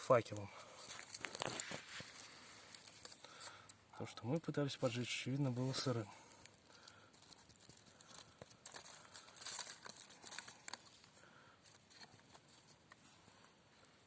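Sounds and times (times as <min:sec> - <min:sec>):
pine fire crackling and snapping: 0:00.0 - 0:03.8, 0:05.4 - 0:11.6.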